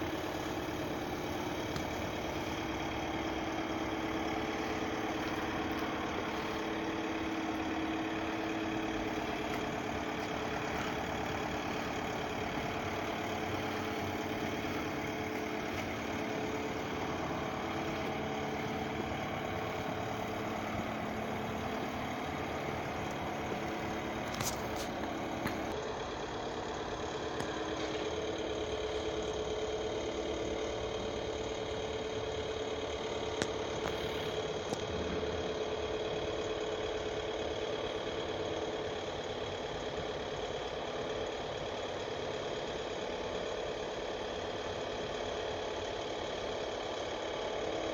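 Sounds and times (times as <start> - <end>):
car wash machine humming: 0.0 - 38.5.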